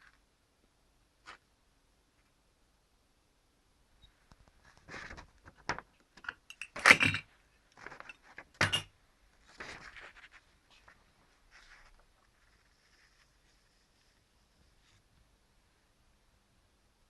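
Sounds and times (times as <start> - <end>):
paper scrapes and rustles: 9.4 - 15.1.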